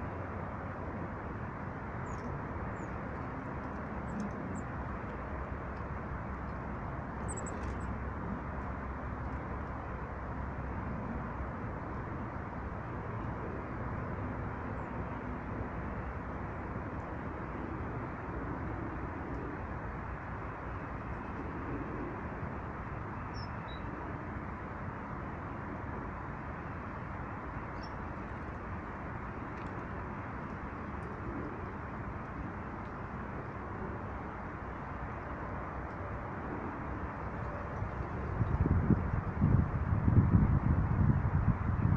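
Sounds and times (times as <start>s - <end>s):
faint bird chirps: 7.2s - 7.7s.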